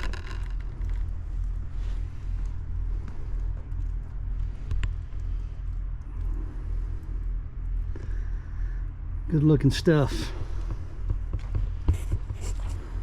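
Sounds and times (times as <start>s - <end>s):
low engine-like rumble: 0.0s - 13.0s.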